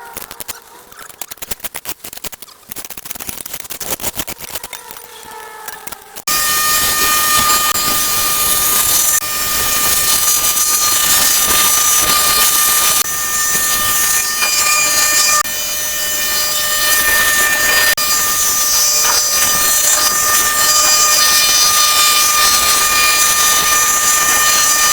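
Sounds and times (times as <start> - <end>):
high steady whine: 6.2 - 24.9
loud hissing machine noise: 6.2 - 24.9.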